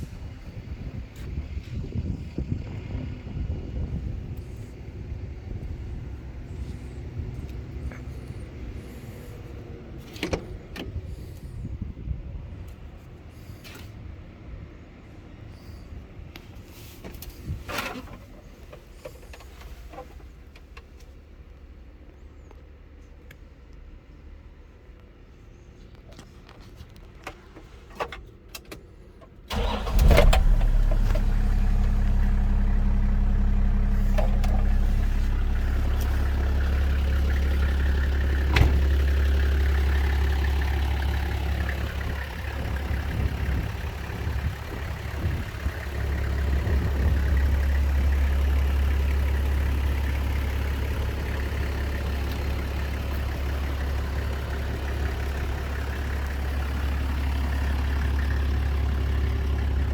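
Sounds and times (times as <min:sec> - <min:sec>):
truck engine cranking and starting: 0:29.5 - 0:59.9
truck engine idling: 0:29.5 - 0:59.9.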